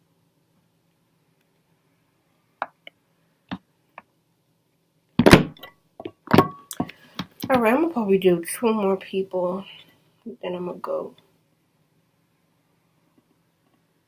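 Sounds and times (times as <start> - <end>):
loud thuds: 5.2 - 5.6.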